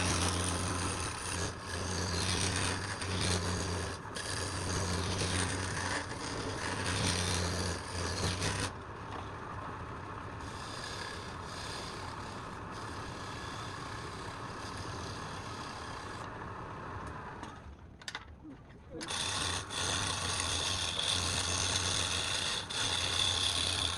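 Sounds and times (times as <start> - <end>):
tool cutting and scraping wood: 0.0 - 9.4, 10.4 - 16.4, 18.9 - 23.9
woodworking machine motor hum: 0.0 - 17.8, 18.9 - 23.9.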